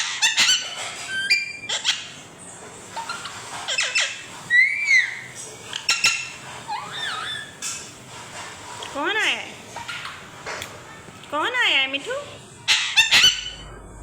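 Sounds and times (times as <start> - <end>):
parrot chirping and whistling: 0.0 - 2.2, 2.9 - 7.7, 12.7 - 13.6.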